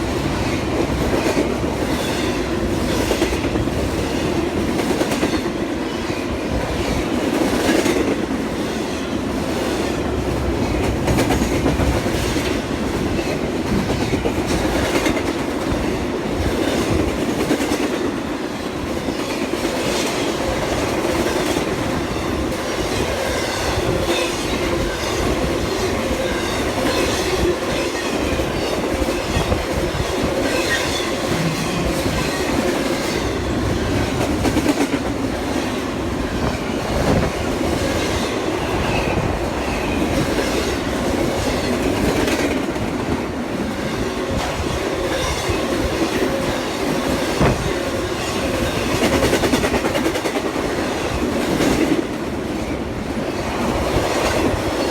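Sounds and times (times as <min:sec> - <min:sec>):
train wheels clacking over rail joints: 0:44.3 - 0:52.1.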